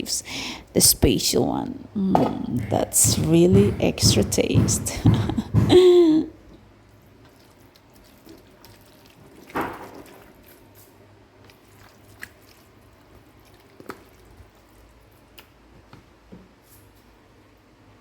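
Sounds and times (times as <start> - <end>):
utensils and containers knocking: 2.2 - 6.3.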